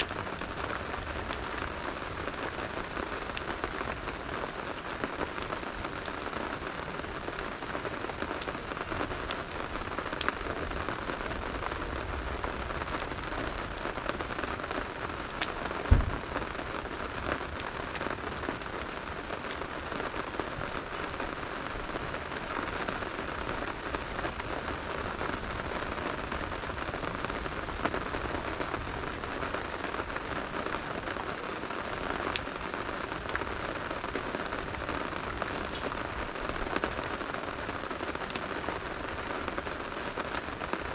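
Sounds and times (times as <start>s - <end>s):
campfire crackling: 0.0s - 40.9s
rain hiss: 0.0s - 40.9s
dull thump: 15.9s - 16.3s.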